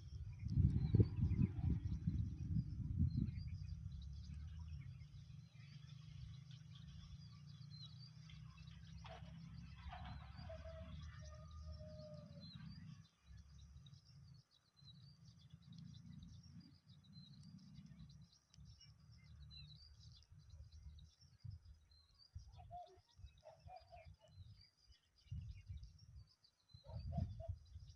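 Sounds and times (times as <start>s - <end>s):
low rumble: 0.0s - 6.0s
faint birds chirping: 0.0s - 27.9s.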